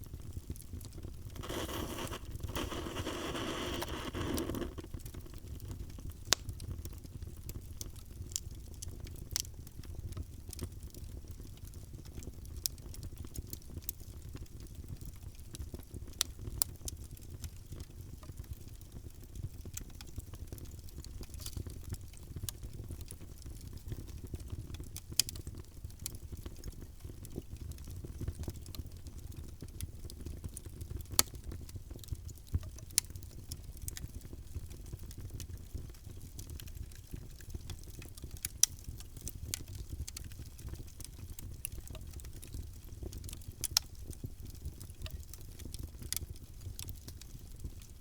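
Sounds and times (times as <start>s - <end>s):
fire crackling in fireplace: 0.1s - 48.0s
hissing rush: 1.4s - 4.8s.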